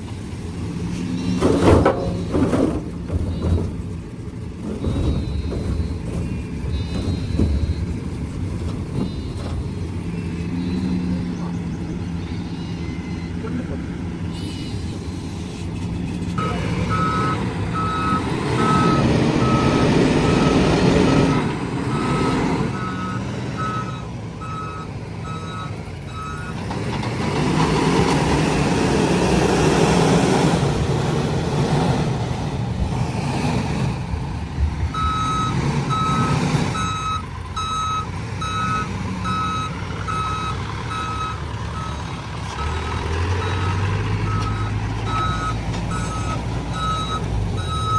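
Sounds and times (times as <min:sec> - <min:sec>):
diesel engine: 0:00.0 - 0:47.9
reversing alarm beeping: 0:04.6 - 0:13.6, 0:14.3 - 0:15.5, 0:16.4 - 0:26.6, 0:34.9 - 0:47.9.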